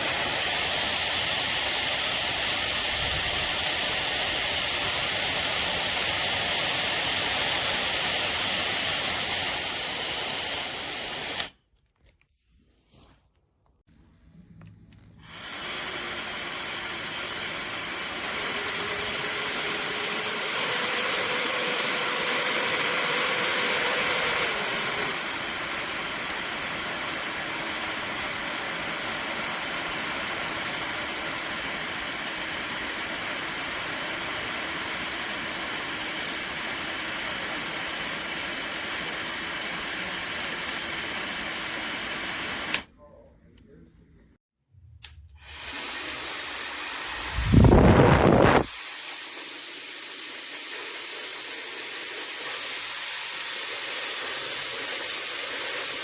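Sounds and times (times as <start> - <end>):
hair dryer airy whoosh: 45.0 - 54.3.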